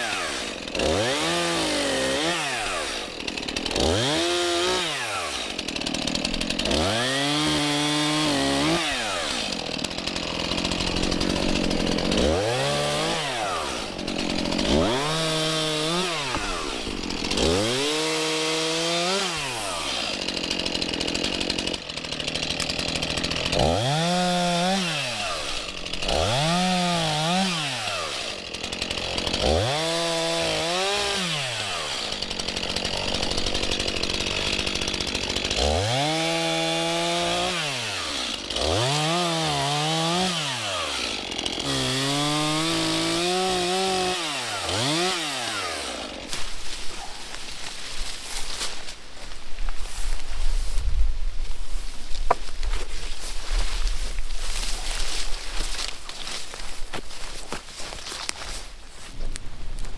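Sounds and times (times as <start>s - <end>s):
chainsaw revving: 0.0s - 49.3s.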